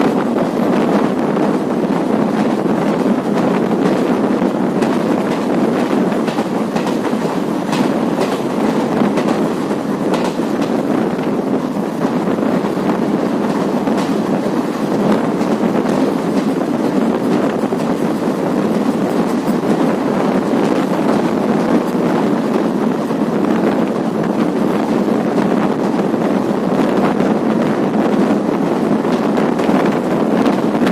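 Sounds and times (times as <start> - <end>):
train coaches rumbling: 0.0 - 30.9
wheels clicking over rail joints: 2.4 - 26.0.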